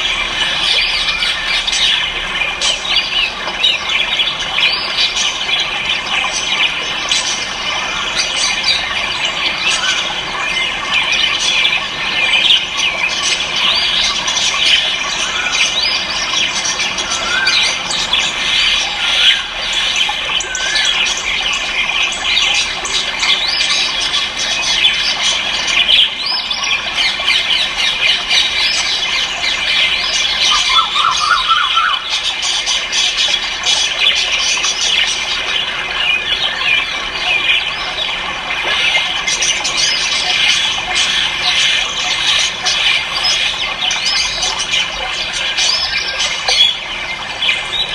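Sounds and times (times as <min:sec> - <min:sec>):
caged birds chirping and squawking: 0:00.0 - 0:47.9.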